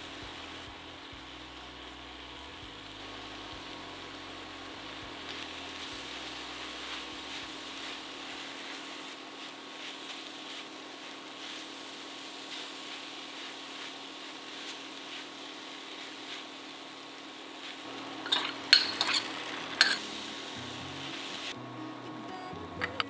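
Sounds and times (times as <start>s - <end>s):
food sizzling in a hot pan: 0.0s - 21.6s
spatulas scraping and tapping pan: 18.2s - 20.1s.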